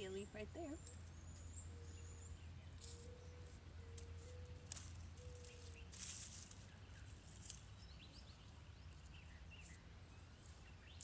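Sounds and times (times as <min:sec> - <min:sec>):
small birds chirping: 0:00.0 - 0:11.0
soft rustles: 0:04.0 - 0:07.7.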